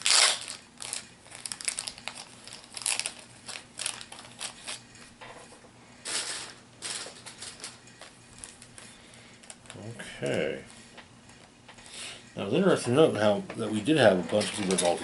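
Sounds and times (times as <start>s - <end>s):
plastic packaging crinkling: 0.0s - 4.9s, 6.0s - 9.8s, 14.3s - 15.0s.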